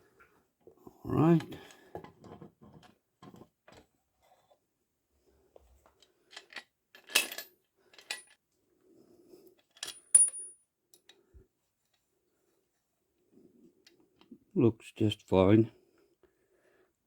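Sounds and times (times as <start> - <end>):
small metal parts clinking: 6.3 - 8.4, 9.6 - 10.6.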